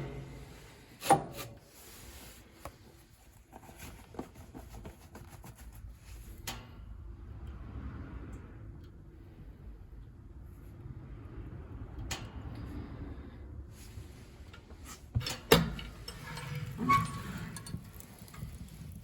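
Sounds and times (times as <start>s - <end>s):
low steady rumble: 0.0s - 1.0s.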